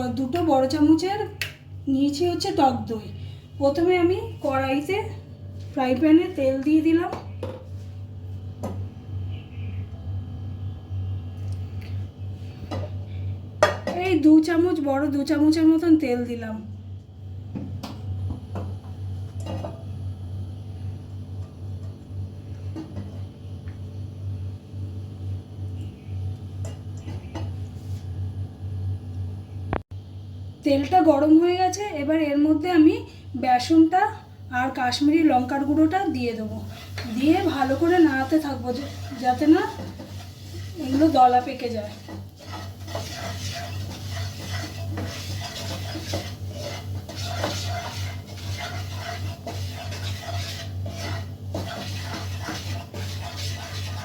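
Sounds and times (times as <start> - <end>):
steady low hum: 0.0 - 54.0
spatula scraping frying pan: 36.6 - 54.0.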